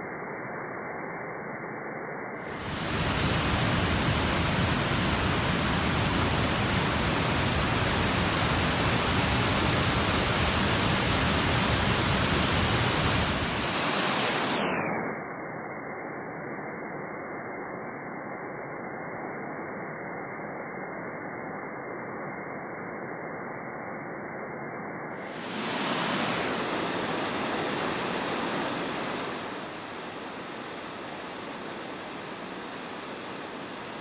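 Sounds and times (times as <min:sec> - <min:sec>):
waterfall rushing: 0:02.5 - 0:14.2.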